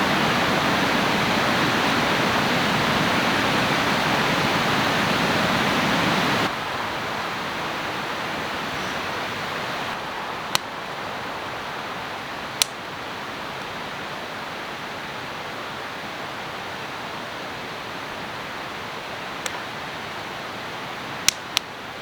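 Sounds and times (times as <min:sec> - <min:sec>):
river rushing: 0:00.0 - 0:22.0
sharp clicks: 0:21.2 - 0:21.7.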